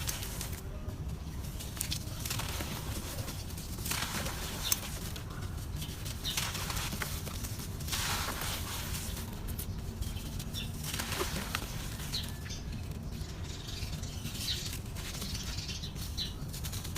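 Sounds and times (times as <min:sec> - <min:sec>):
dry dirt crumbling: 0:00.0 - 0:16.9
sharp crunches: 0:01.6 - 0:12.6.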